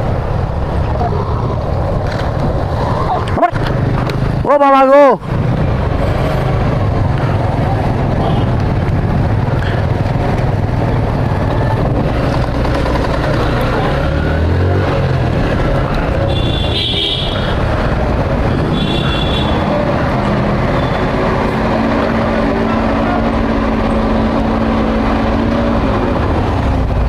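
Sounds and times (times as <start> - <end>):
vehicle engine and traffic: 0.0 - 27.0.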